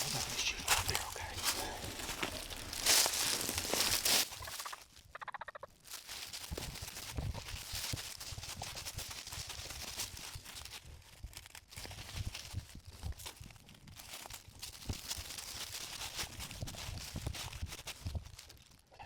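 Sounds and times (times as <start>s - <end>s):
footsteps in leaf litter: 0.0s - 5.1s, 5.8s - 18.8s
turkey gobbling: 4.3s - 5.7s.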